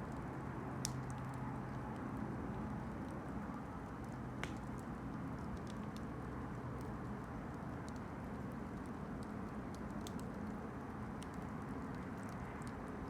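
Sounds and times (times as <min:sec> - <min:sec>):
campfire burning: 0:00.1 - 0:13.0
fire crackles and pops: 0:00.8 - 0:01.3, 0:03.9 - 0:13.0.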